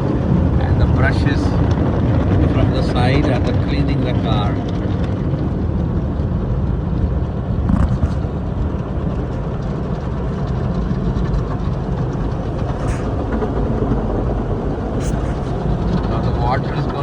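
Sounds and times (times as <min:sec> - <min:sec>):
car wash machinery rumble: 0:00.0 - 0:17.0.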